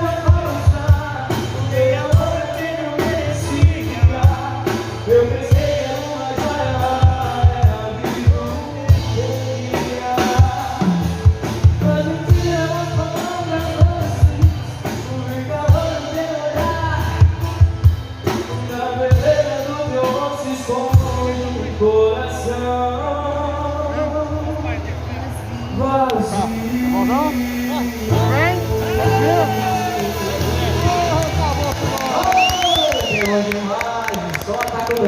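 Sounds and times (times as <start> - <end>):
person singing: 0.0 - 17.6, 25.8 - 35.0
steady drum beat: 0.0 - 21.8, 26.4 - 34.5
live band playing: 0.0 - 35.0.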